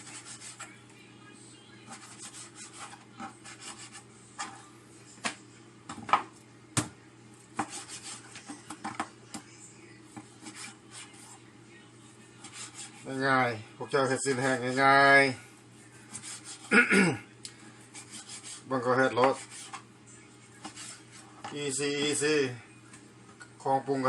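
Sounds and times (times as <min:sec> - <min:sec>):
meat rubbing and scraping: 0:01.9 - 0:04.6, 0:12.4 - 0:13.2, 0:14.0 - 0:15.0, 0:15.9 - 0:16.7, 0:17.9 - 0:19.8, 0:20.6 - 0:21.4.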